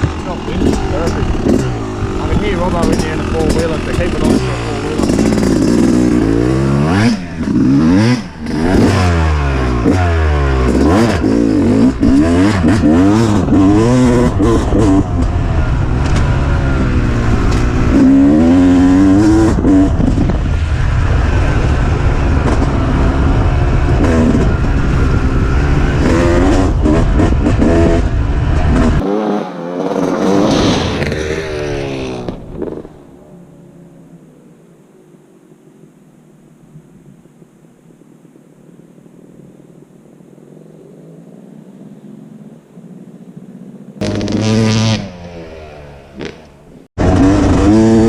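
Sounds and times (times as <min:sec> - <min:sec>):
dirt bike engine revving: 0:00.0 - 0:33.8, 0:44.0 - 0:48.0.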